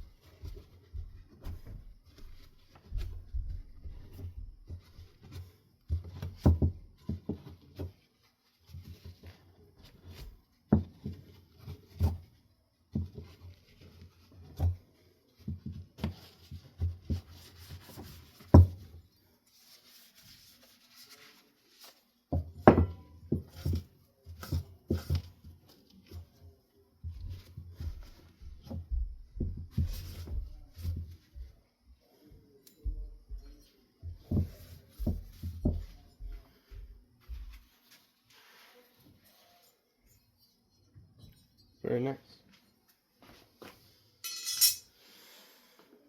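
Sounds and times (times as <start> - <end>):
fan parts knocking on a desk: 22.3 - 23.8.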